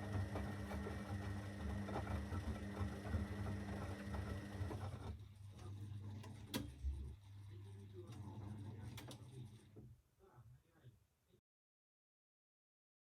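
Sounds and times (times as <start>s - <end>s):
washing machine drum motor humming: 0.0s - 9.8s.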